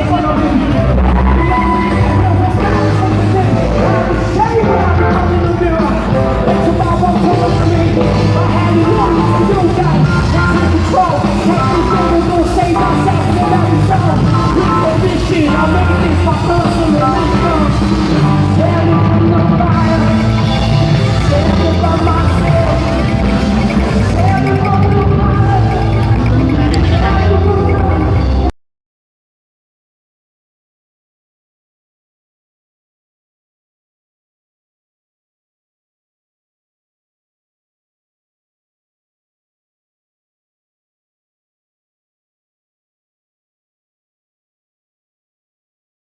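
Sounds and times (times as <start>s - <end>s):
live rock band playing: 0.0s - 28.5s
vocalist singing: 0.0s - 28.5s.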